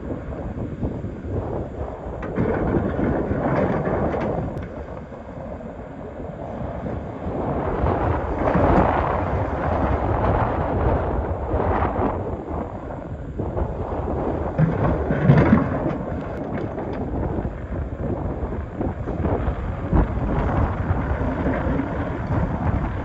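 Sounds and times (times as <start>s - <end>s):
excavator working under load: 0.0s - 23.0s
bucket grinding rocks: 2.2s - 4.9s, 14.3s - 17.4s.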